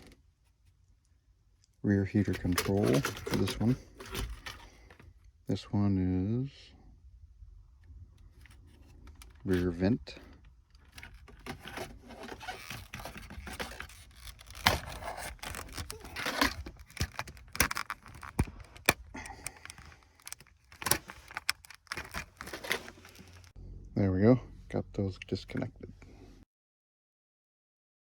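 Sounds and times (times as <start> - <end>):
panel and wires scraping: 2.2 - 5.0, 8.4 - 23.6
plastic connectors clicking: 12.4 - 23.5.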